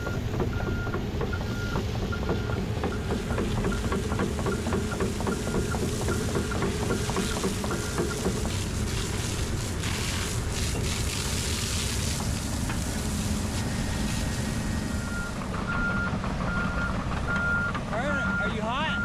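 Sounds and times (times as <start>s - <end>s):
water spray hissing: 3.3s - 15.0s.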